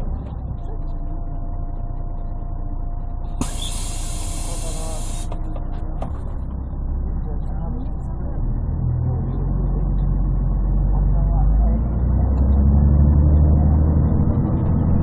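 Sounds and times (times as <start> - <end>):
bus diesel engine rumble: 0.0 - 15.0
compressed air hiss: 3.4 - 5.3.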